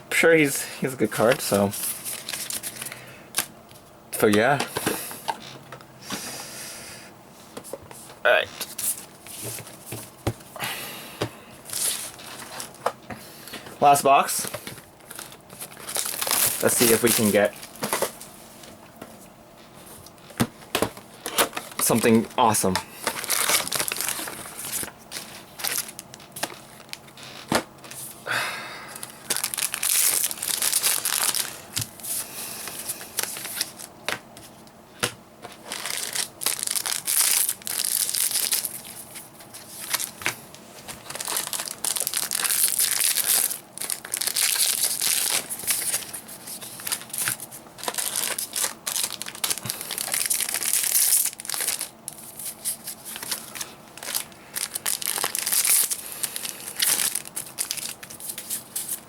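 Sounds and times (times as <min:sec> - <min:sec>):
foil packs tearing and crinkling: 0:01.1 - 0:03.5, 0:11.6 - 0:12.8, 0:13.9 - 0:18.3, 0:21.2 - 0:27.7, 0:28.9 - 0:33.9, 0:35.4 - 0:59.0.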